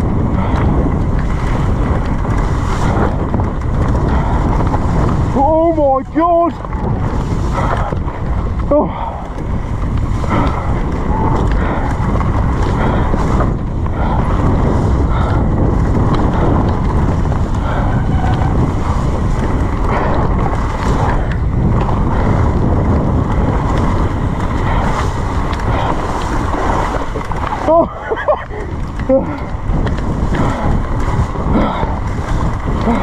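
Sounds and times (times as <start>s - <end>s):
bike knocking on bumps: 0.0s - 33.0s
mountain bike rattling: 0.0s - 33.0s
wind buffeting microphone: 0.0s - 33.0s.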